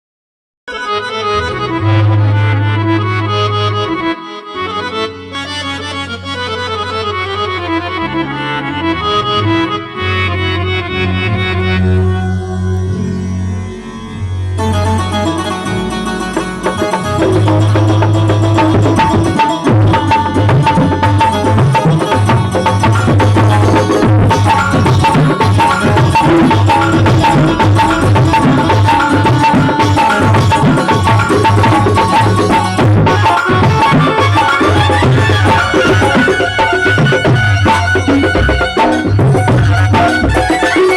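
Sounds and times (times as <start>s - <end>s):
long held bass notes: 0.7s - 40.9s
reedy accordion-like melody: 0.7s - 40.9s
fast hand drum percussion: 16.1s - 40.9s.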